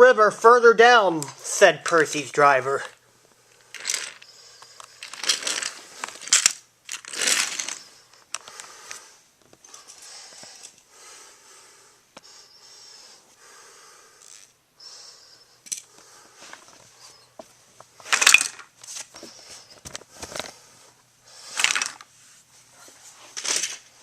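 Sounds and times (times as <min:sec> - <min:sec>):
crinkling and rustling: 0:03.6 - 0:08.7, 0:16.0 - 0:24.0.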